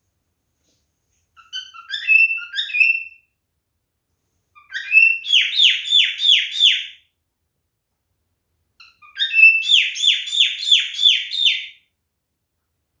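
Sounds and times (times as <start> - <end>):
cockatiel whistling and chirping: 1.4 - 3.3, 4.5 - 7.0, 8.8 - 11.8.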